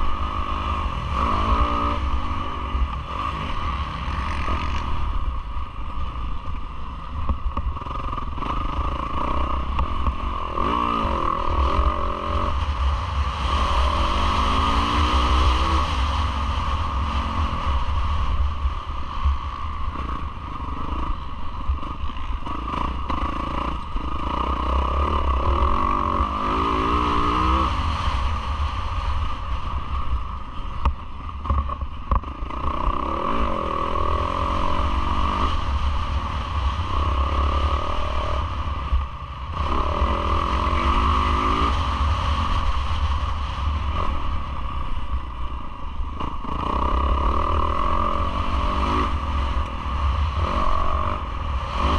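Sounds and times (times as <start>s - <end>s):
motocross engine revving: 0.0s - 5.1s, 7.8s - 16.2s, 21.8s - 28.0s, 39.5s - 42.3s
wind noise on camera: 0.0s - 51.9s.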